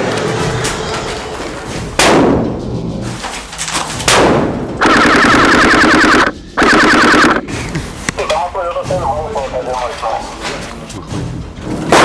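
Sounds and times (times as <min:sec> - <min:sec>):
airsoft rifle full-auto fire: 0:04.8 - 0:07.4.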